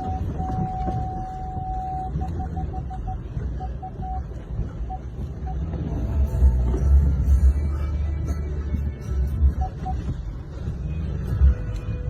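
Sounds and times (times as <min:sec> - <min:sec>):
short beeps: 0:00.0 - 0:06.2, 0:09.3 - 0:10.3.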